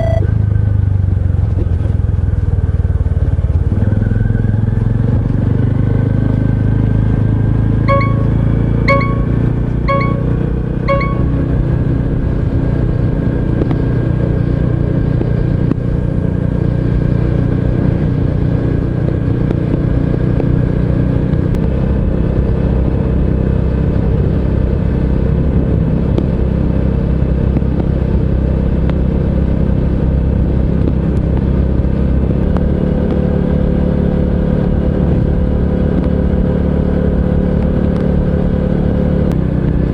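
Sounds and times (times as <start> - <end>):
short beeps: 0.0 - 0.3, 7.9 - 11.7.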